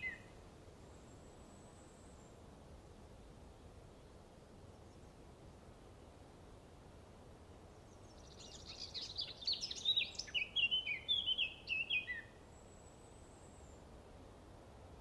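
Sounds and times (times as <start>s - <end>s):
songbird singing: 0.0s - 2.5s, 7.6s - 14.0s.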